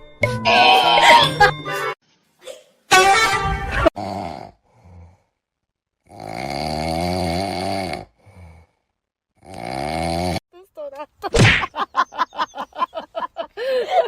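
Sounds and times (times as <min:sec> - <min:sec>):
pet snoring: 0:06.0 - 0:08.7, 0:09.4 - 0:10.4
faint breath: 0:08.2 - 0:09.0.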